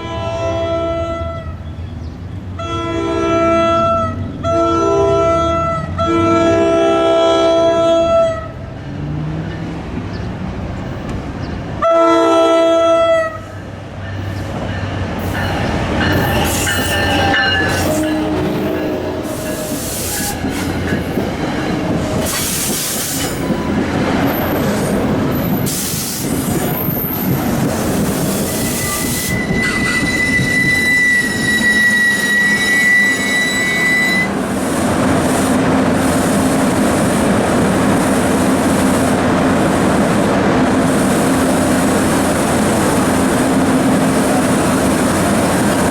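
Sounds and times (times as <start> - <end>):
train horn blast: 0.0 - 1.6, 2.6 - 8.6, 11.8 - 13.6, 16.2 - 20.5, 28.5 - 34.4
train wheels squealing: 15.2 - 21.0, 22.2 - 34.3.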